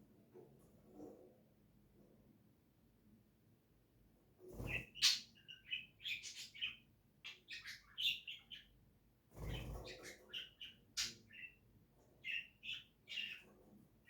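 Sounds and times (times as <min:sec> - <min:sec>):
cage bird chirping: 0:04.5 - 0:13.8.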